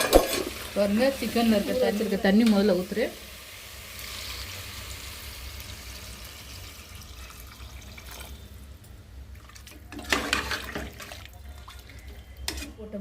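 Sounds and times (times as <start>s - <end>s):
splashing and clattering in pot: 0.0s - 0.9s, 9.3s - 12.8s
liquid bubbling in a pot: 6.6s - 12.8s.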